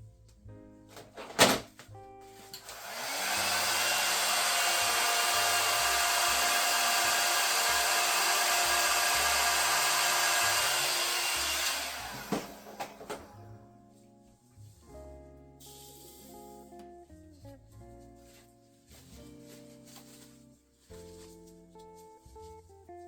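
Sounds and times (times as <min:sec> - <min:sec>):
hot-air blower running: 0:02.5 - 0:13.3.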